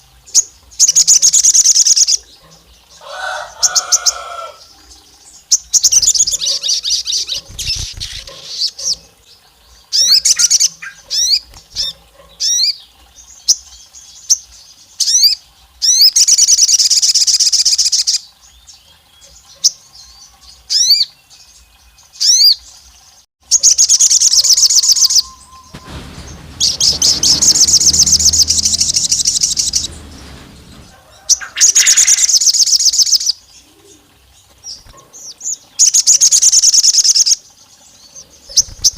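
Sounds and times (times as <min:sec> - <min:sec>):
bird chirps and trills: 0:03.8 - 0:09.1, 0:23.6 - 0:33.3, 0:34.7 - 0:38.9.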